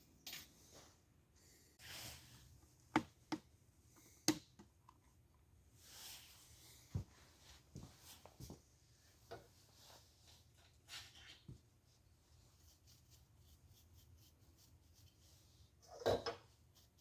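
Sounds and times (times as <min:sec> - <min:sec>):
soft rustling: 0:05.8 - 0:12.4.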